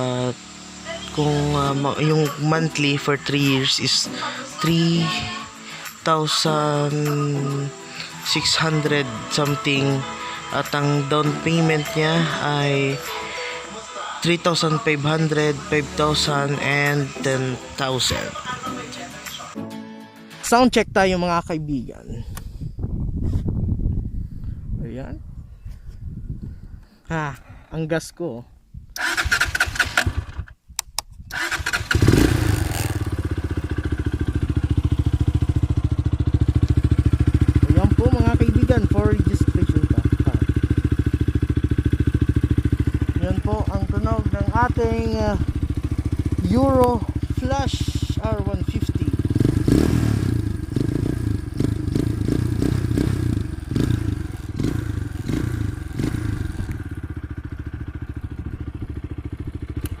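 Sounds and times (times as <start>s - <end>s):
motorcycle engine idling: 0.0s - 19.6s, 31.4s - 60.0s
motorcycle engine cranking clicks: 29.0s - 32.3s, 59.7s - 60.0s.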